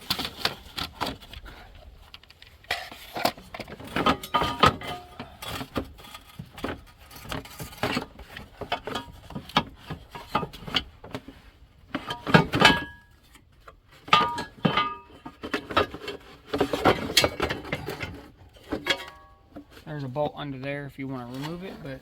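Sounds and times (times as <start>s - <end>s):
metal tools clinking and knocking: 3.5s - 6.6s, 14.1s - 19.7s
ringing metal clanks: 14.2s - 15.2s, 18.8s - 19.5s.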